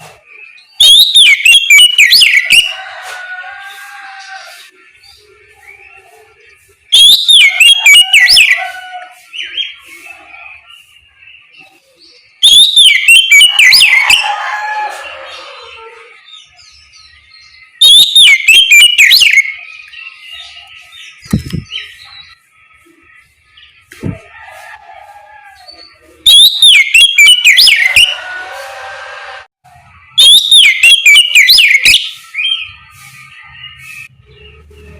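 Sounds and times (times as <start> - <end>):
magpie-robin whistled song: 0.2 - 2.7, 4.6 - 14.3, 16.2 - 24.0, 25.6 - 28.2, 30.1 - 34.9
short low thump: 21.3 - 21.7.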